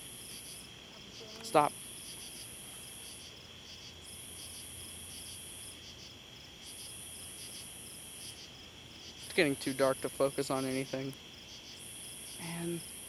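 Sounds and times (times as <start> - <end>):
crickets trilling: 0.0 - 13.0
high insect buzz: 0.0 - 13.0.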